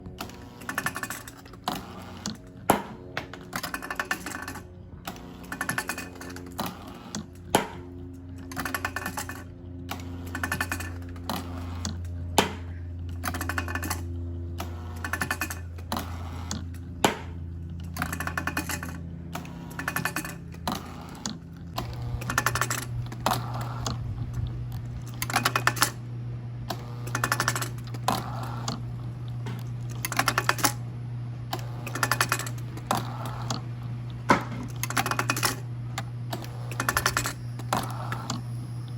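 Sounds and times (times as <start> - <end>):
rapid clicks and rattles: 0.0 - 30.9, 31.5 - 38.9
hydraulic engine hum: 0.0 - 38.9.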